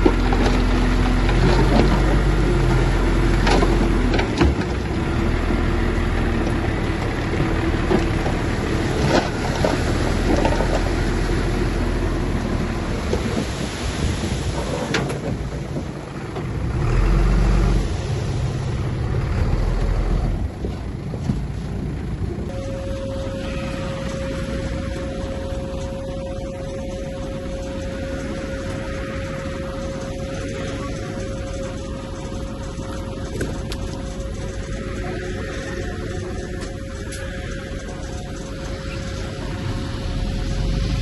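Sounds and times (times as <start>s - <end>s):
bulldozer diesel engine running: 0.0s - 41.0s
metallic clanking of tracks: 22.5s - 41.0s.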